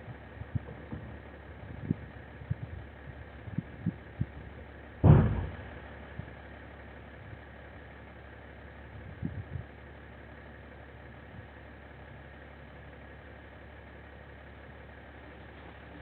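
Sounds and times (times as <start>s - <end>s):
engine idling: 0.0s - 16.0s
loud thud: 5.0s - 5.9s
low thumps: 5.0s - 5.9s.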